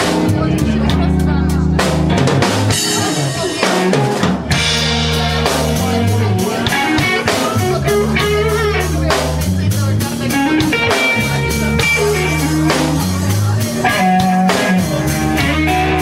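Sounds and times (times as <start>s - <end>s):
drum kit hits: 0.0s - 16.0s
live blues band playing: 0.0s - 16.0s.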